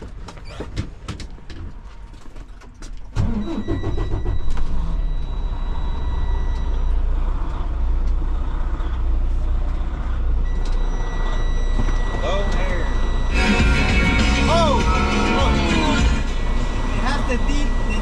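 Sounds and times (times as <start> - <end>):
diesel engine cranking and idling: 0.0 - 18.0
high warning tone: 10.4 - 18.0.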